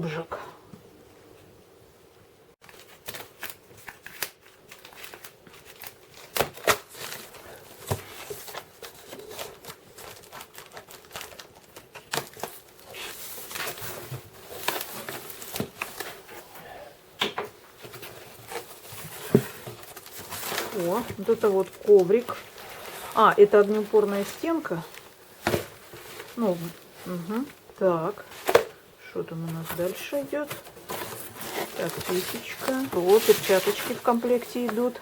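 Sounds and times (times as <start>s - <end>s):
packaging tearing and crinkling: 2.6s - 16.4s, 17.8s - 26.4s, 29.7s - 35.0s.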